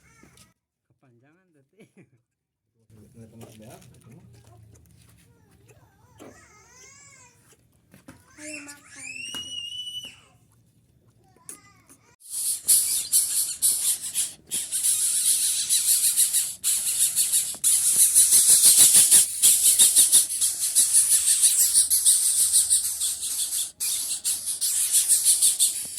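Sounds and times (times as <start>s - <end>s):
chick hissing begging call: 12.2s - 25.9s.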